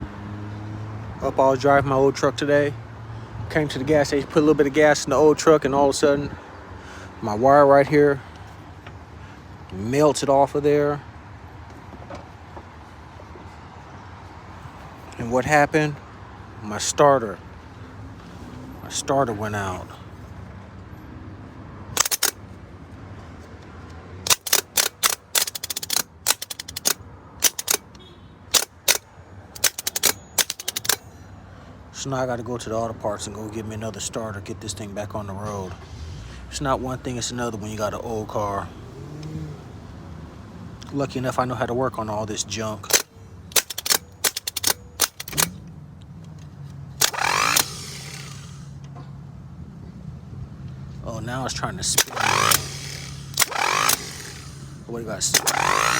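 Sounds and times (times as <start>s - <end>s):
loud grinding burst: 22.0s - 22.4s, 24.3s - 27.9s, 28.5s - 29.0s, 29.6s - 31.0s, 42.9s - 45.6s, 47.0s - 48.8s, 51.8s - 55.9s
starter solenoid clicking: 22.0s - 22.4s, 24.3s - 29.0s, 29.6s - 31.0s, 42.9s - 45.6s, 47.0s - 48.7s, 51.9s - 55.9s.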